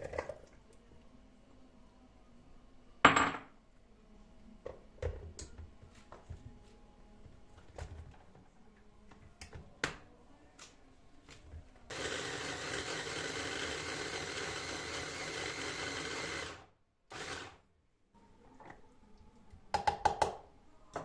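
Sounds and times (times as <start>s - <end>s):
kitchen appliance motor running: 11.9s - 17.6s.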